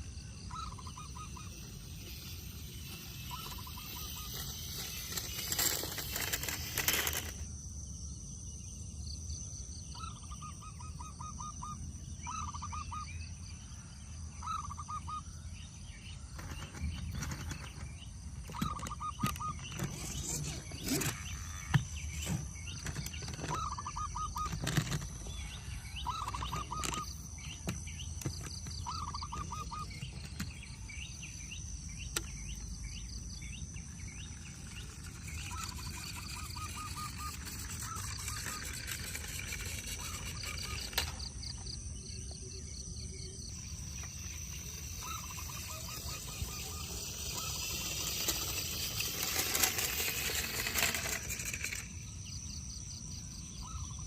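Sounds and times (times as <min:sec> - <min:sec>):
high bird chirps: 0:00.0 - 0:07.1, 0:16.0 - 0:54.0
short pulsed bird calls: 0:18.4 - 0:42.4, 0:43.0 - 0:49.1.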